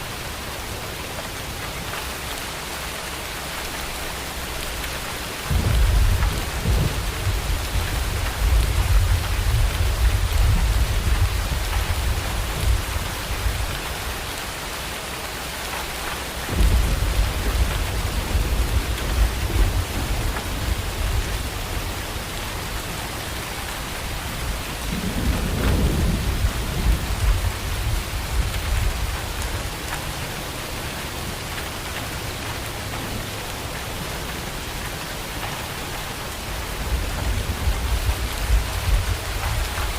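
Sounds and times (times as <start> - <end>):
steady rain falling: 0.0 - 39.9
thunder rumbling: 5.4 - 14.0, 16.5 - 30.6, 36.6 - 39.9.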